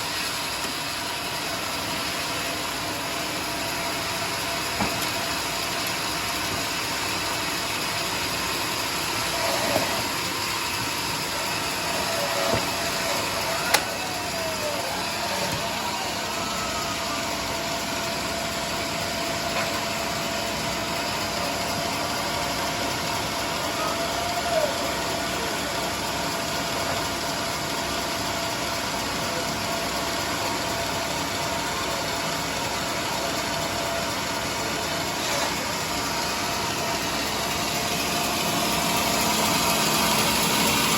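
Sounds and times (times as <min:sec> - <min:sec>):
sawmill machinery droning: 0:00.0 - 0:40.9.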